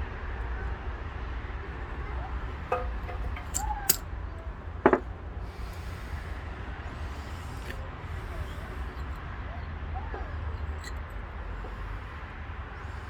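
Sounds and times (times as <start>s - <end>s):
metal parts clinking: 2.6s - 4.0s, 10.7s - 11.2s.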